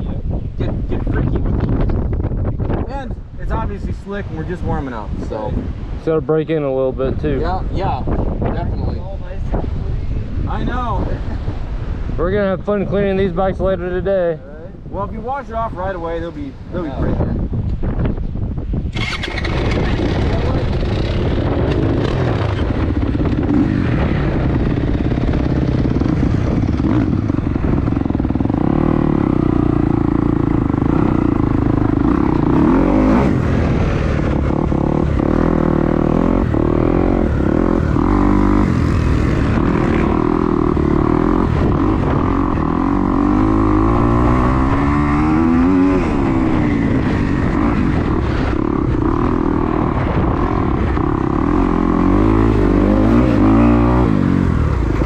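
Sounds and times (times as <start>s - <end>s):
wind buffeting microphone: 0.0s - 55.0s
dirt bike engine revving: 18.9s - 55.0s.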